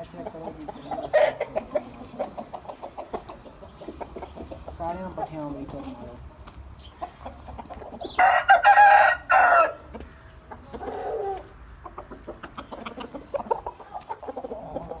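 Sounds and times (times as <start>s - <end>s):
rooster crowing: 8.2s - 9.8s.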